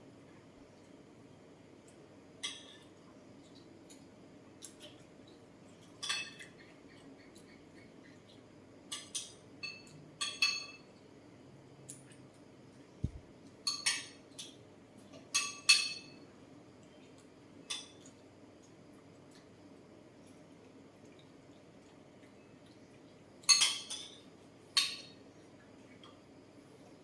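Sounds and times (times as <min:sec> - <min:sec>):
cutlery clinking against dishes: 0:05.9 - 0:06.6, 0:08.9 - 0:10.9, 0:13.6 - 0:16.2, 0:23.4 - 0:25.2.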